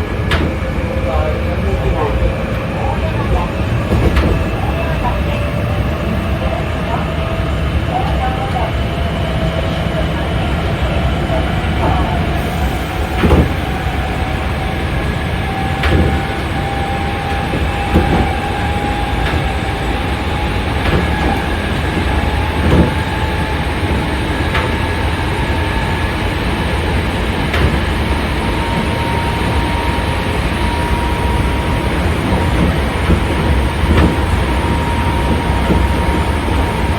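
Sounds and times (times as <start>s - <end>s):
electric train rumble: 0.0s - 36.9s.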